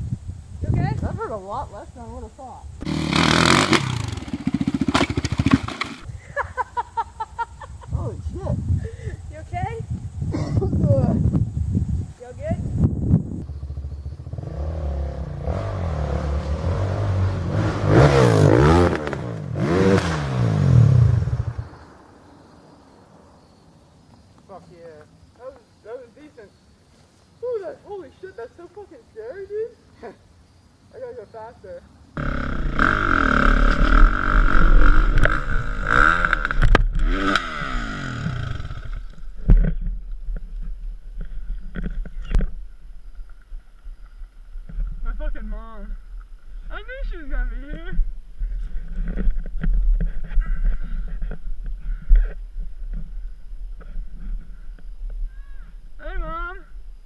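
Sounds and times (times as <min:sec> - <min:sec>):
dirt bike engine revving: 0:02.8 - 0:06.1, 0:13.4 - 0:21.7, 0:32.2 - 0:39.2.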